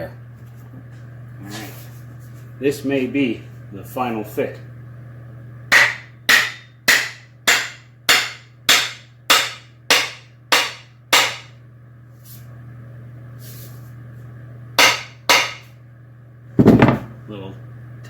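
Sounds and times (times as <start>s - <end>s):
wooden knocks on axe head: 5.7s - 11.5s, 14.8s - 15.6s.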